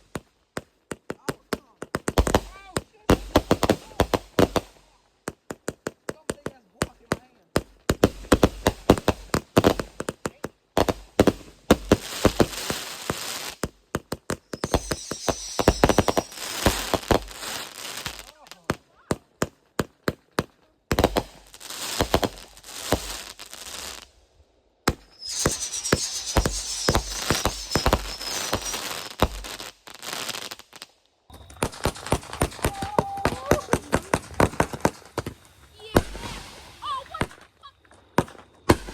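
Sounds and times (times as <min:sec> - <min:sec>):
fireworks bangs: 0:00.0 - 0:06.2, 0:07.6 - 0:24.2, 0:24.8 - 0:38.9
fireworks crackling: 0:00.0 - 0:38.9
firework whistle: 0:14.5 - 0:18.2, 0:24.9 - 0:30.5, 0:31.3 - 0:38.9.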